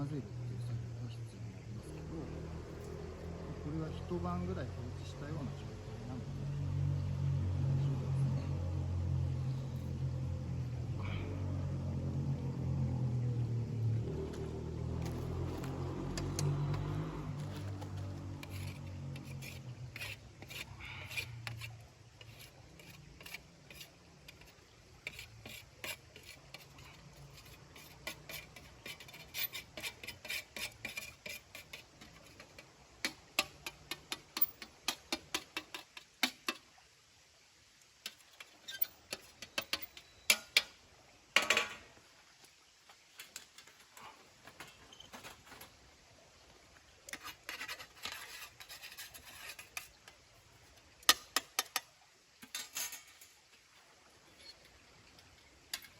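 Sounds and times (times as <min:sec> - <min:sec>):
charcoal and ash scraping: 0:14.0 - 0:36.6, 0:47.1 - 0:50.2.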